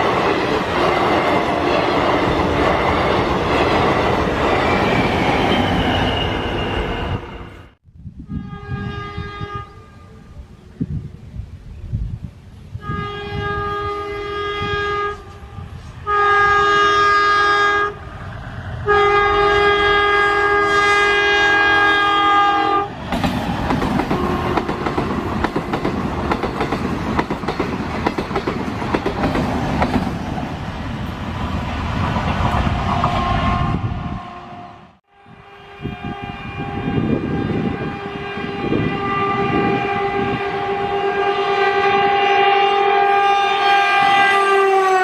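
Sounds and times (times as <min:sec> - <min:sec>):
train horn blasts: 0:06.1 - 0:10.4, 0:12.8 - 0:18.1, 0:18.8 - 0:23.0, 0:24.0 - 0:25.1, 0:33.0 - 0:45.0
train wheels clicking over rail joints: 0:23.0 - 0:33.2.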